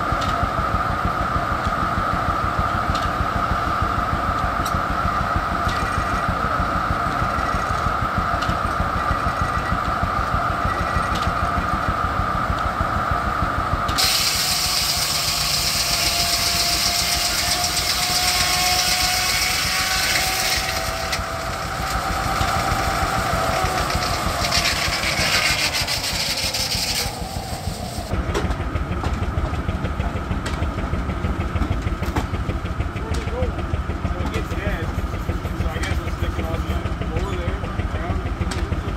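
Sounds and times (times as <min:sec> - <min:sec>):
circular saw cutting log: 0:00.0 - 0:12.8, 0:13.8 - 0:28.2, 0:34.1 - 0:37.5
steam engine rapid beat: 0:14.0 - 0:28.0.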